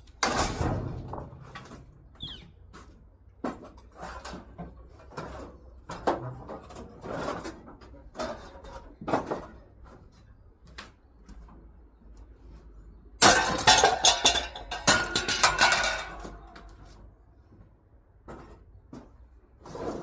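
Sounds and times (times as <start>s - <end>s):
hard objects knocking and clattering: 13.2s - 16.7s.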